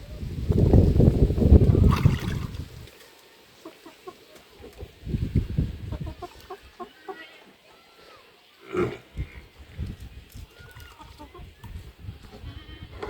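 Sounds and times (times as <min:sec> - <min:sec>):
chickens clucking: 0:03.6 - 0:07.7, 0:10.6 - 0:13.0.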